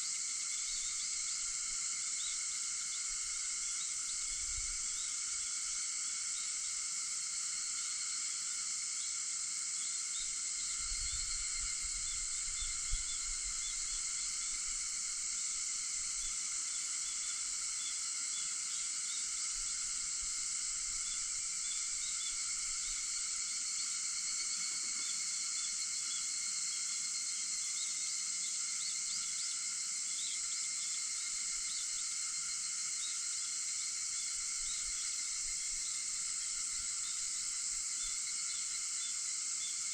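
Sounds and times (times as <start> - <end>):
cicadas droning: 0.0 - 39.9.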